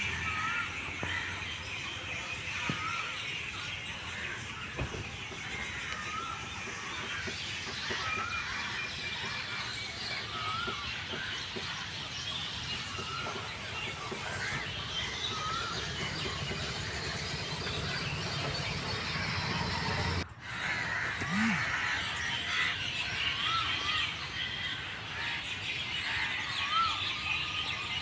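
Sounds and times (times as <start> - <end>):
bird call up and down: 21.0 - 24.7.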